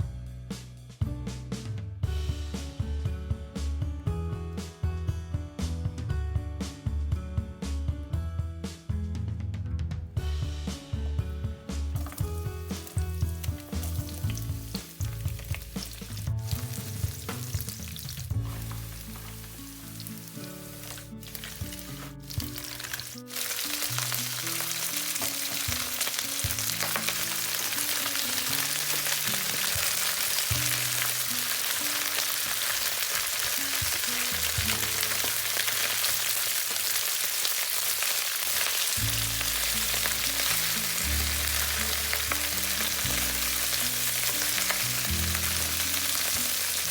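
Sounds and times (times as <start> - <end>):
soft background music: 0.0 - 46.9
food sizzling in a pan: 12.0 - 46.9.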